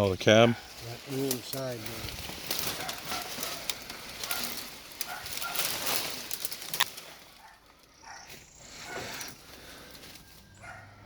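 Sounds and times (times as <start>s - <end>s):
dry leaves crackling underfoot: 0.0s - 11.0s
twigs snapping: 1.1s - 8.5s
faint bird chirps: 7.8s - 11.0s.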